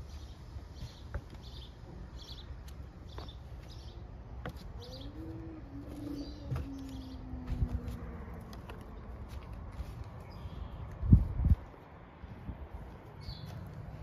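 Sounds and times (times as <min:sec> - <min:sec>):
small bird chirping: 0:00.0 - 0:07.6, 0:13.2 - 0:13.6
low outdoor rumble: 0:00.0 - 0:14.0.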